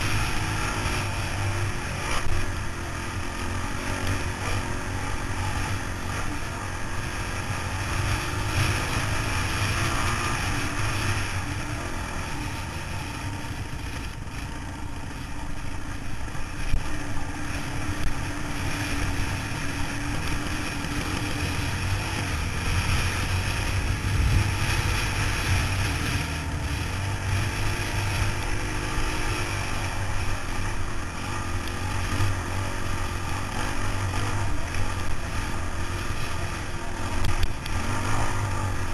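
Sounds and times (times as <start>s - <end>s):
wind noise: 0.0s - 2.3s, 18.0s - 30.8s
motorcycle engine drone: 0.0s - 38.9s.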